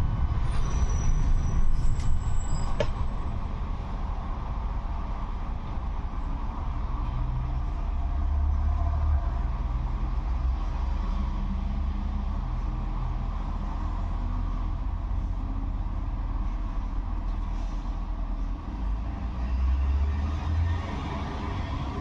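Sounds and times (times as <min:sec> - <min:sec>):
tram wheels rumbling on rails: 0:00.0 - 0:10.1.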